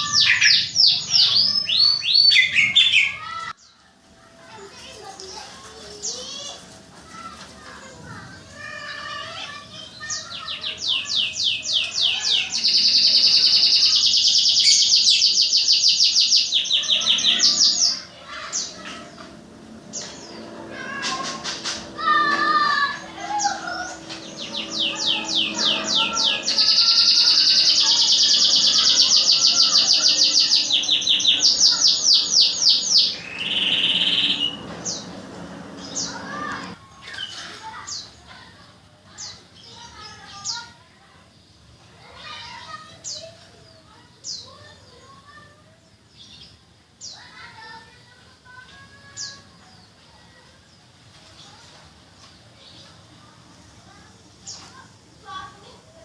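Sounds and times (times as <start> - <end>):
bird chirps and calls: 0.0 - 3.8, 7.6 - 47.9, 48.5 - 50.8
songbird trilling: 22.8 - 35.0.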